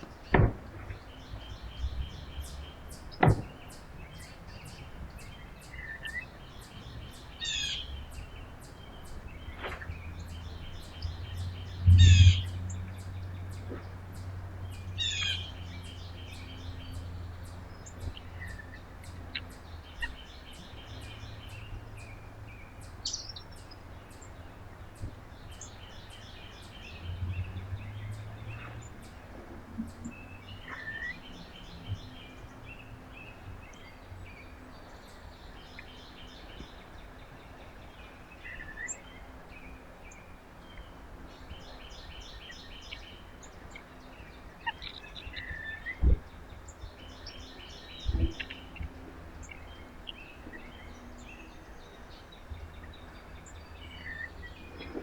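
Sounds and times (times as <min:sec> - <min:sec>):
small birds chirping: 0:00.0 - 0:55.0
sharp thumps: 0:00.3 - 0:01.0, 0:03.2 - 0:03.6.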